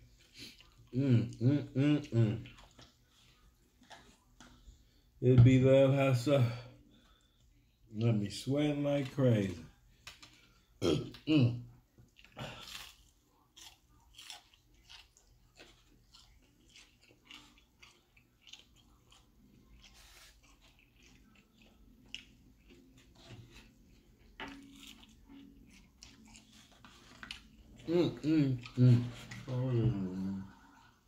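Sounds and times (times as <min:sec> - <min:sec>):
person chewing crunchy food: 0:00.0 - 0:05.0, 0:12.0 - 0:31.0.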